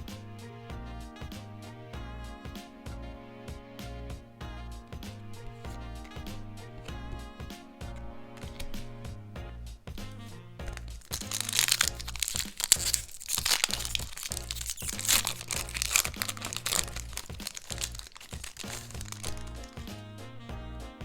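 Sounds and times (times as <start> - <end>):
background music: 0.0 - 21.0
packaging crinkling and tearing: 10.7 - 19.9.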